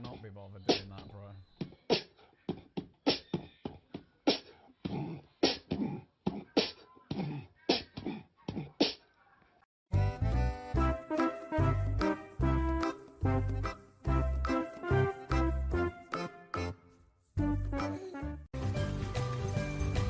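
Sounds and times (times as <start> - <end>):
person beatboxing: 1.6 - 9.0
upbeat music: 9.9 - 16.8, 17.4 - 20.0.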